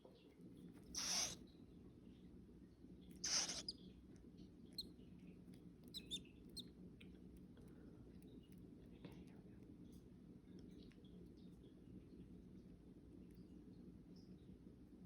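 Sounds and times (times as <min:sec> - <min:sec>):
baby bird peeping: 0:00.9 - 0:01.4, 0:03.2 - 0:03.8, 0:05.8 - 0:06.7
short hissing noises: 0:01.0 - 0:01.4, 0:03.2 - 0:03.7.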